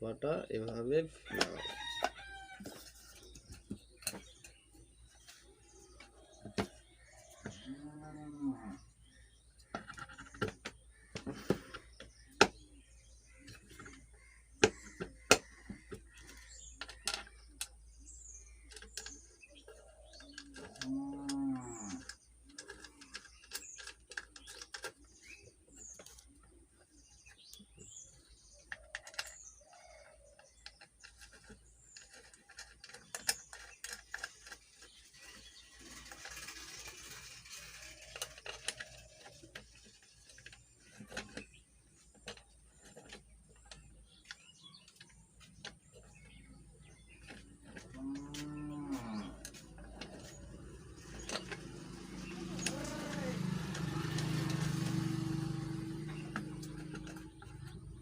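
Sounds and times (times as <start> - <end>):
small birds chirping: 0.0 - 58.0
clicks and knocks of fan parts: 0.6 - 5.4, 13.4 - 17.8, 18.5 - 58.0
cow mooing: 7.7 - 8.8, 20.8 - 22.0, 48.0 - 49.4, 52.4 - 54.2.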